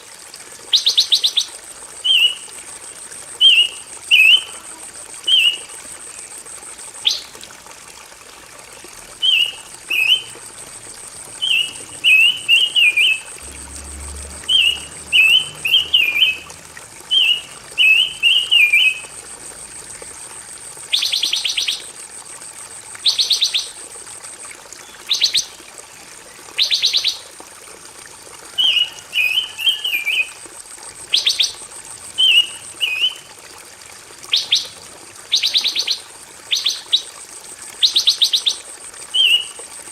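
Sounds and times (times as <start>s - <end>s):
bird chirping and trilling: 9.2s - 10.3s, 11.4s - 13.2s, 14.5s - 16.4s, 17.1s - 19.0s.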